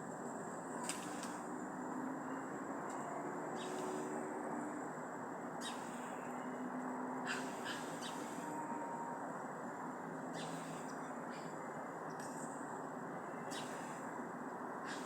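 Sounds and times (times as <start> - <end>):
steady background hiss: 0.0 - 15.0
short bird calls: 5.6 - 6.3, 7.2 - 8.6, 10.4 - 11.6, 13.4 - 14.0.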